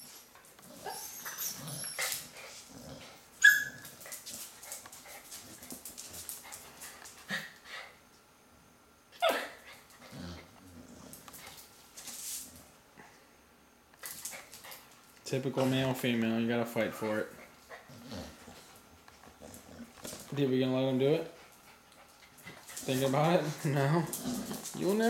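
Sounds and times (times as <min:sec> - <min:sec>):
dogs scuffling: 0:03.7 - 0:07.3, 0:11.1 - 0:12.7, 0:18.4 - 0:25.0.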